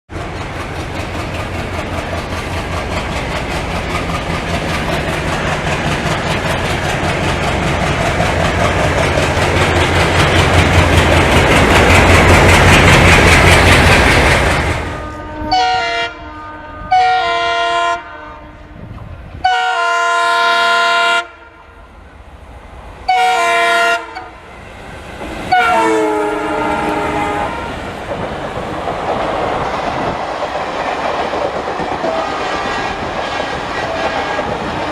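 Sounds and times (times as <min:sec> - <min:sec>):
train wheels clattering on rails: 0:00.1 - 0:15.2, 0:24.5 - 0:34.9
diesel locomotive engines: 0:00.1 - 0:34.9
multi-tone train horn blasts: 0:14.8 - 0:21.9, 0:23.0 - 0:24.4, 0:25.5 - 0:27.8, 0:33.7 - 0:34.9.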